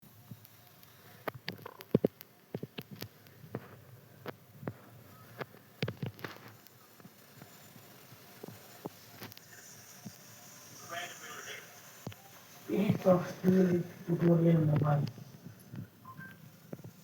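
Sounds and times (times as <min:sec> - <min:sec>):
sharp clicks and light knocks: 0:00.3 - 0:04.8, 0:05.4 - 0:07.5.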